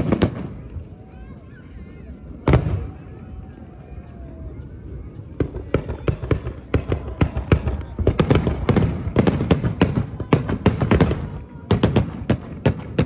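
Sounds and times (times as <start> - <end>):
fireworks banging: 0.0 - 0.9, 2.4 - 3.2, 5.2 - 13.0.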